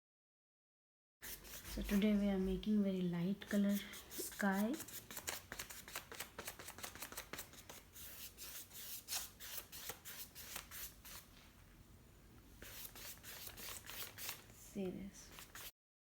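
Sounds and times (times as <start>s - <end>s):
paintbrush scratching on paper: 1.2s - 2.7s, 3.3s - 11.3s, 12.6s - 14.5s, 15.2s - 15.7s.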